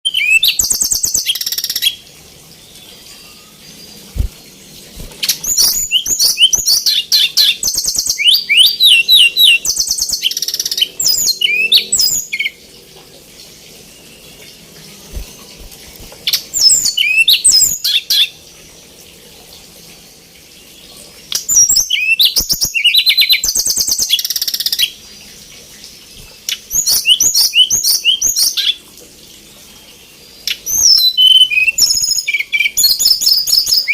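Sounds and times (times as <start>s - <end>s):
bird singing trills and whistles: 0.0s - 2.0s, 5.0s - 12.6s, 15.1s - 18.4s, 21.0s - 25.0s, 26.5s - 28.8s, 29.9s - 33.9s.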